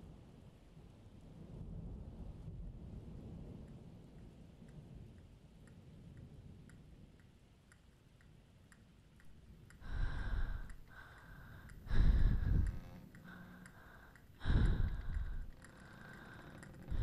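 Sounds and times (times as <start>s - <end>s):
heavy slow breathing: 9.7s - 17.0s.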